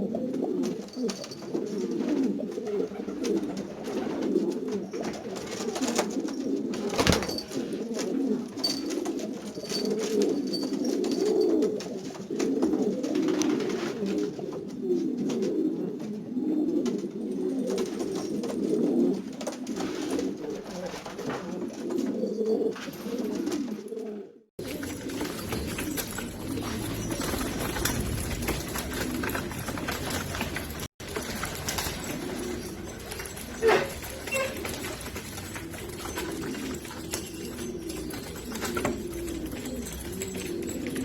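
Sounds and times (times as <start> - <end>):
pigeons cooing: 0.0 - 41.0.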